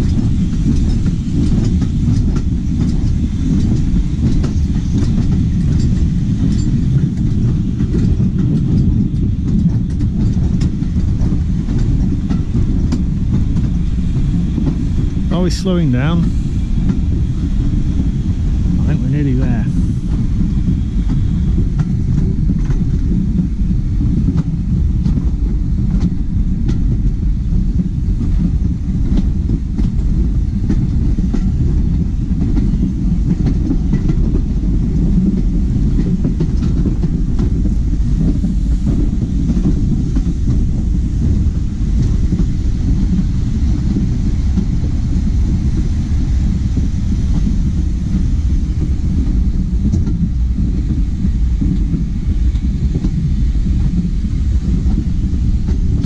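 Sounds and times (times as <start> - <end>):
wheels clicking over rail joints: 0.0 - 15.3
railway coach rumbling: 0.0 - 56.0.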